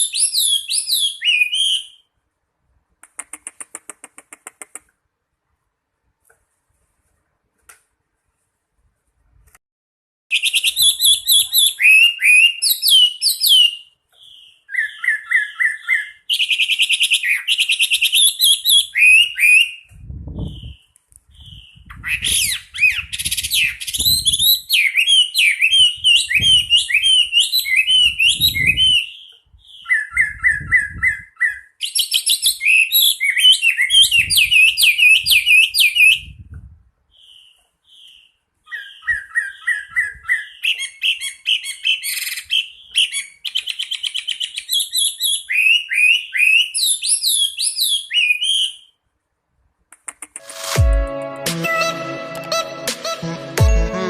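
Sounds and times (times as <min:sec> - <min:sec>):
bird singing whistled song: 0:00.0 - 0:02.1, 0:10.3 - 0:36.4, 0:37.1 - 0:49.0.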